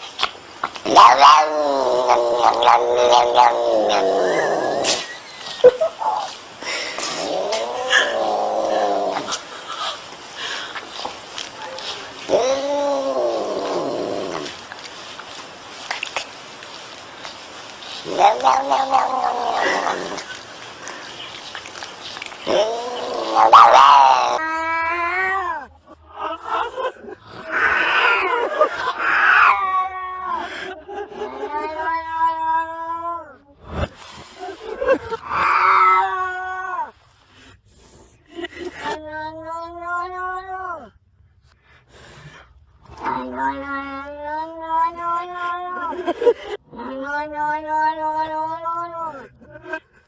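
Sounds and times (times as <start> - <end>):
cat yowling: 0.9 - 5.0, 11.7 - 14.5, 18.0 - 20.2, 22.4 - 26.4, 27.4 - 30.4, 31.3 - 33.4, 35.2 - 36.9, 42.9 - 46.1, 46.7 - 49.3.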